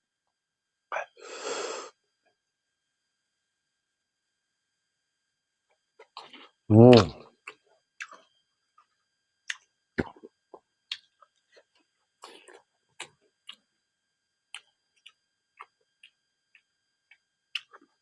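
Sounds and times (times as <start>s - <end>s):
person chewing wet smacks: 6.0s - 8.2s, 9.5s - 13.7s, 14.5s - 18.0s.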